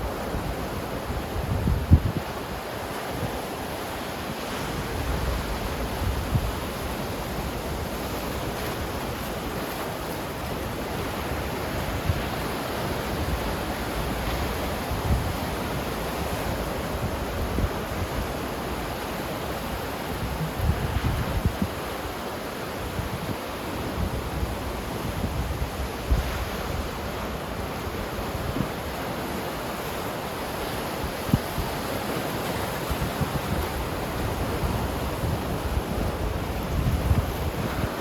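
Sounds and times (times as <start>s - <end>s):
wind buffeting microphone: 0.0s - 2.4s, 19.7s - 22.0s, 23.0s - 29.1s, 30.6s - 38.0s
ocean surf washing: 0.0s - 38.0s.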